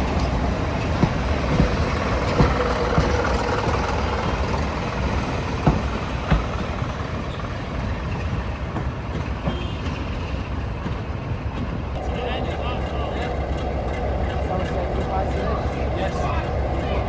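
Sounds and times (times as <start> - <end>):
diesel locomotive engine rumbling: 0.0 - 17.0.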